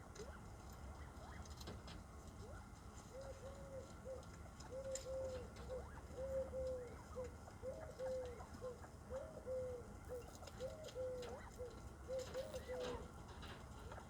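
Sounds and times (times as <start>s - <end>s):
dove cooing: 10.6s - 13.0s.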